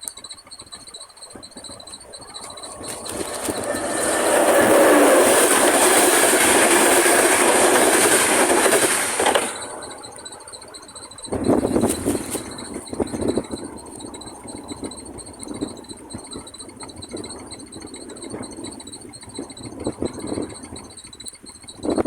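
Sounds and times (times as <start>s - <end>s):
crossing warning bell ringing: 0.0s - 22.0s
train passing: 0.4s - 21.2s.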